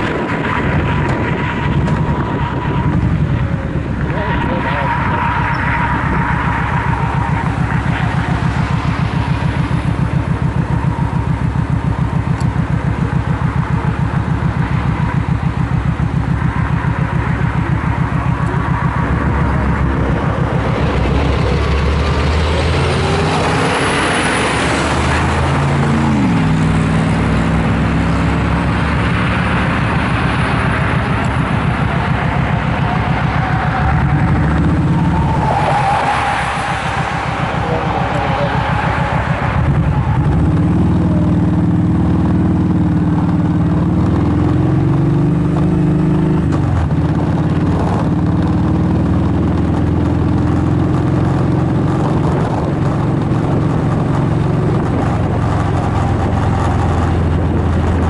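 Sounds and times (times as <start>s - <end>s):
vehicles passing by: 0.0s - 58.0s
motorcycle engine idling: 5.9s - 21.8s.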